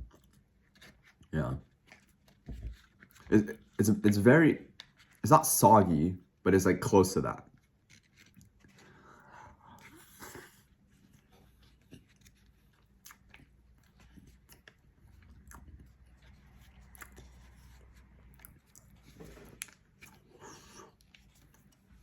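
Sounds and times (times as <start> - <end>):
person chewing: 0.0 - 3.8, 7.4 - 22.0.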